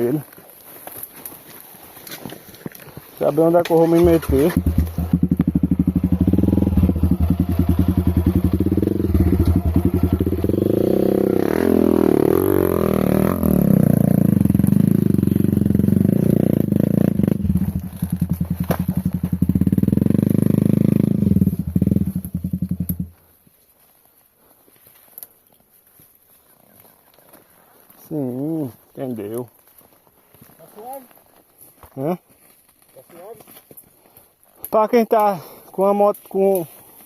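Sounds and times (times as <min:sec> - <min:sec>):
motorcycle engine revving: 0:03.7 - 0:23.2.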